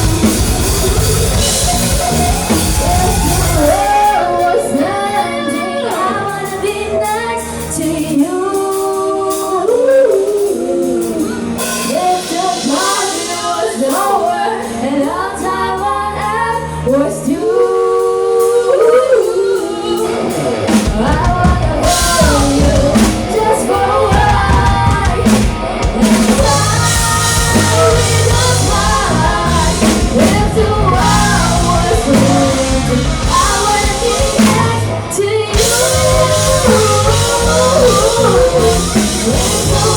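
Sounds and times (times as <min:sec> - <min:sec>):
bass guitar notes: 0:00.0 - 0:05.4, 0:20.0 - 0:39.9
drum kit: 0:00.0 - 0:16.3, 0:18.3 - 0:39.9
live rock band playing: 0:00.0 - 0:39.9
person singing: 0:00.0 - 0:39.9.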